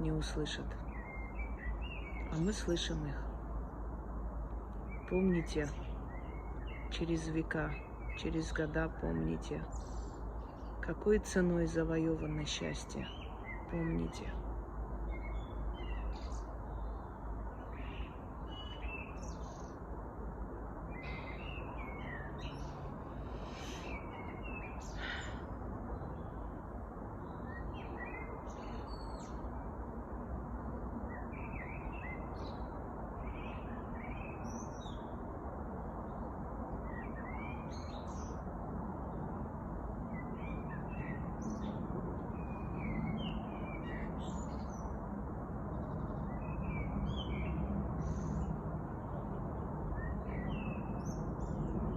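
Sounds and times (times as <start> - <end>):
songbirds chirping and singing: 0.0 - 3.8, 4.7 - 19.9, 20.9 - 25.4, 40.1 - 45.0, 49.9 - 51.9
steady background hiss: 0.0 - 51.9.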